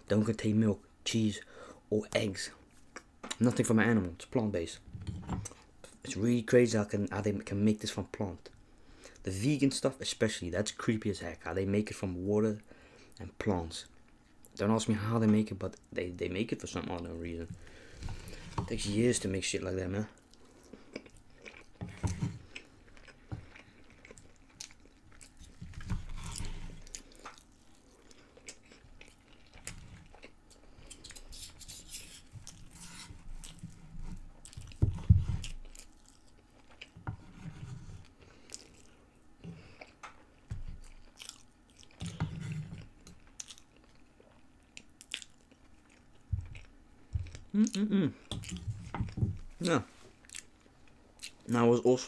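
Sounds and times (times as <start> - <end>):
close chewing and biting: 20.2 - 31.5, 33.4 - 37.0, 39.7 - 51.5.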